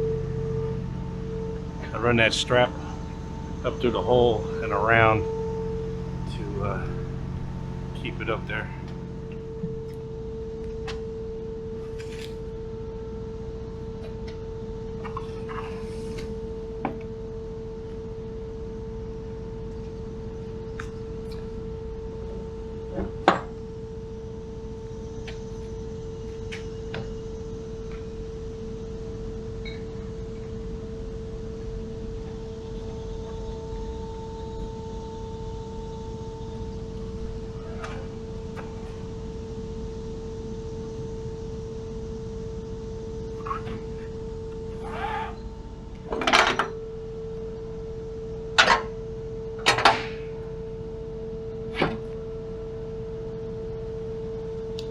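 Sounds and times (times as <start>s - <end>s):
steady one-pitch hum: 0.0s - 54.9s.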